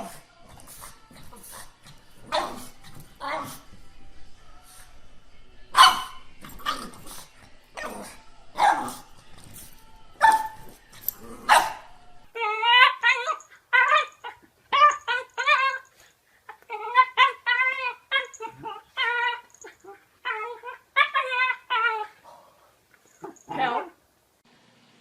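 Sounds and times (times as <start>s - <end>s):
dog barking: 5.8s - 6.8s, 8.6s - 9.0s, 11.5s - 11.8s.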